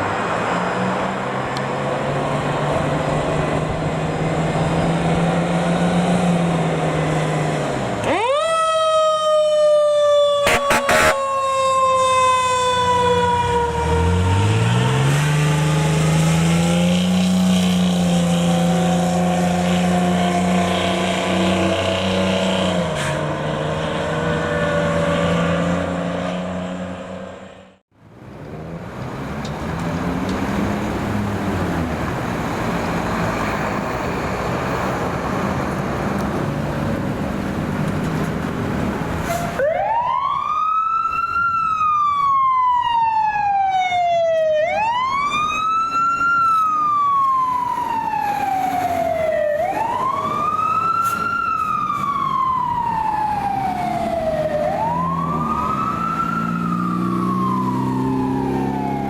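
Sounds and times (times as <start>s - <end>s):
fire truck engine: 0.0s - 59.0s
road noise: 0.0s - 59.0s
siren wailing: 8.0s - 22.7s, 38.8s - 59.0s.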